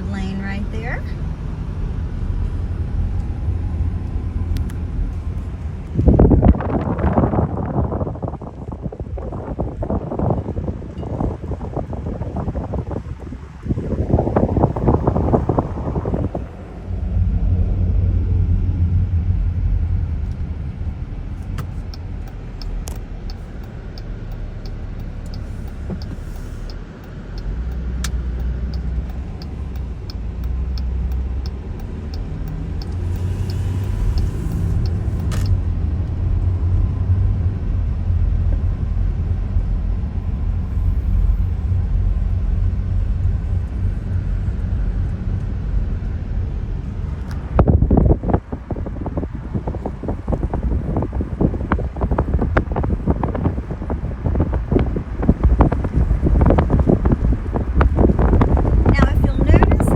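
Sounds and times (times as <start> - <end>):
car engine and road rumble: 0.0 - 59.9
light ticking: 21.3 - 35.6.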